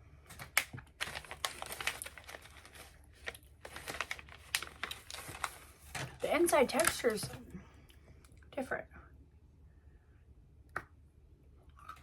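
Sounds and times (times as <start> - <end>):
crunchy chewing: 11.7 - 12.0.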